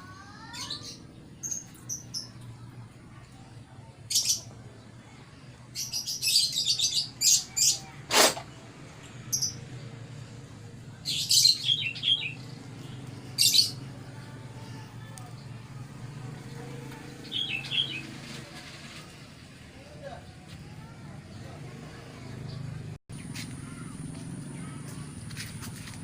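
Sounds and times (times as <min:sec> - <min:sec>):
songbird chirping: 0:09.0 - 0:19.2.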